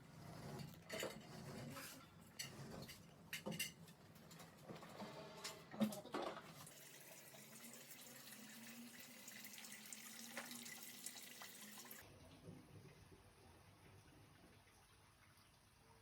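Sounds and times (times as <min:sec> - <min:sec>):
water running from a tap: 0:06.5 - 0:12.0.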